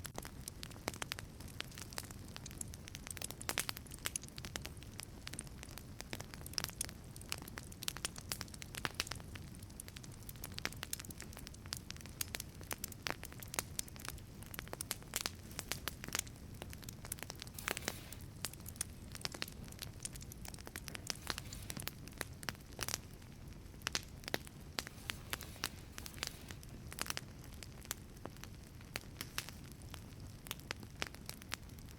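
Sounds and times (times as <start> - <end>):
wood fire crackling and popping: 0.0 - 31.9
low rush of flame: 10.4 - 31.9.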